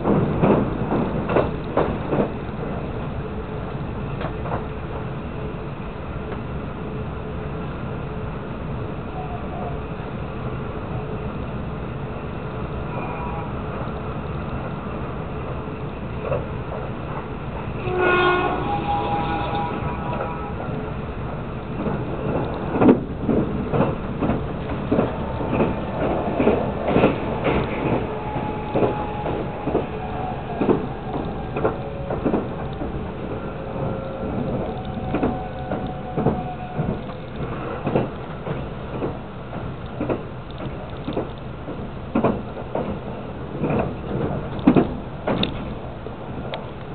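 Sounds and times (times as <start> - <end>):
train running gear rumble: 0.0 - 46.9
wheels knocking on track: 21.8 - 45.7.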